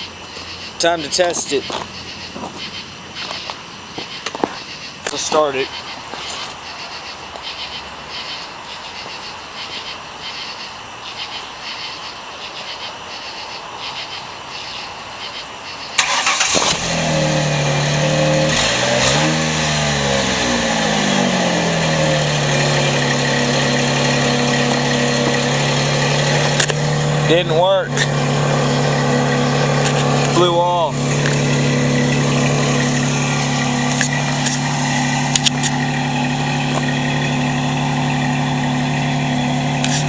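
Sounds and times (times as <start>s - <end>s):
car engine starting and idling: 0.0s - 5.9s, 16.0s - 40.0s
light regular ticking: 22.3s - 40.0s.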